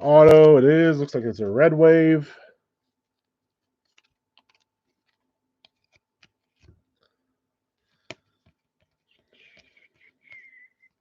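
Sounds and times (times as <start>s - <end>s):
trading cards clicking and rustling: 3.1s - 7.2s, 7.8s - 11.0s.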